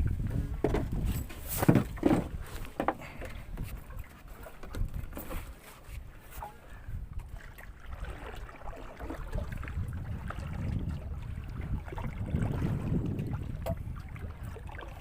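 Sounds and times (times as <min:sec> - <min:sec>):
low rumbling wind: 0:00.0 - 0:15.0
water noise: 0:00.0 - 0:15.0.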